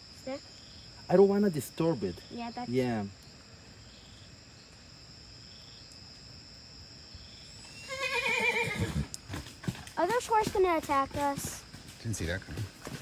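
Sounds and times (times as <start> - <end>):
night insects chirping: 0.0 - 13.0
horse whinnying: 7.7 - 9.2.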